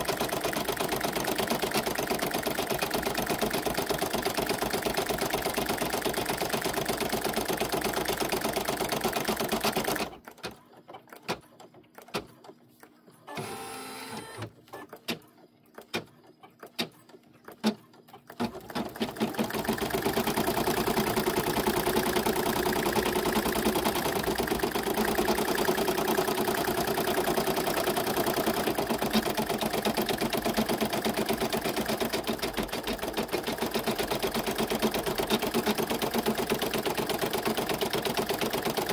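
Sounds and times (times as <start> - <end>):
embroidery machine stitching: 0.0 - 10.5, 13.3 - 15.0, 17.6 - 38.9
machine clicks: 9.1 - 19.6, 20.3 - 38.9.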